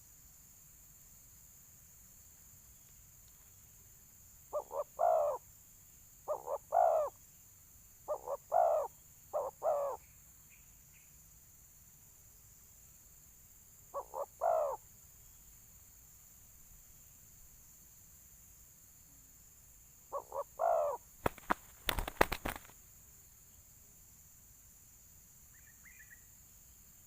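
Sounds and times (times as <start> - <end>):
dove cooing: 4.5 - 5.4, 6.3 - 7.2, 8.1 - 10.0, 13.9 - 14.8, 20.1 - 22.7.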